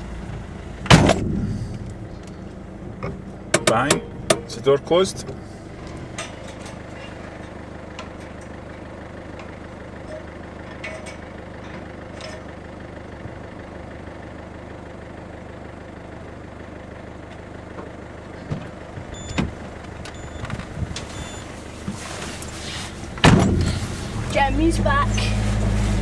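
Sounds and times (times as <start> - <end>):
car engine running: 0.0 - 26.0
loud thump: 0.8 - 1.8, 23.2 - 23.8.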